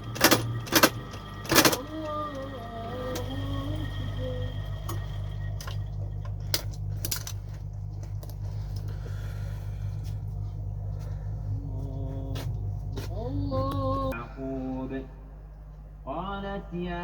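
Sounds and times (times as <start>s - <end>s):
low motor hum: 0.0s - 17.0s
man chanting: 11.6s - 15.2s.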